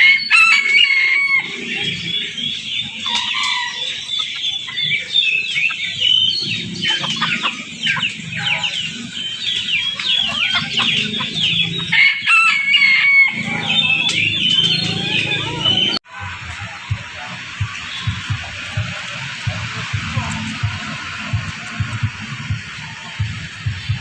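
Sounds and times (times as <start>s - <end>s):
caged birds chirping: 0.0s - 24.0s
steady low rumble: 13.4s - 24.0s.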